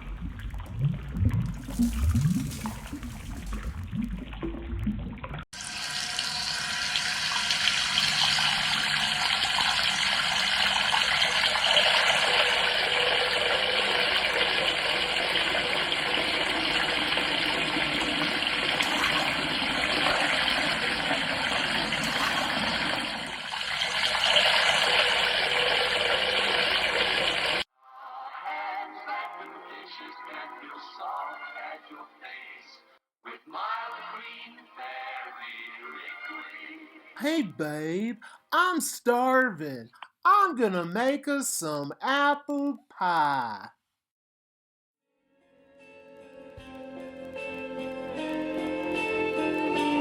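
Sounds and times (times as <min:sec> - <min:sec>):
tap water running into sink: 0:05.6 - 0:27.6.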